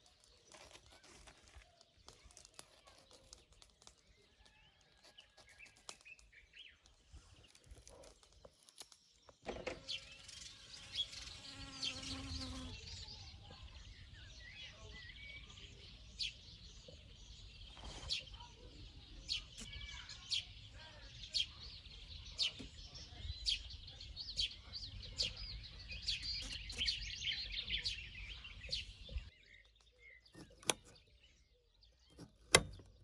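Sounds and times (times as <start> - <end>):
small birds chirping: 0.0 - 33.0
insect buzzing past: 10.0 - 12.8.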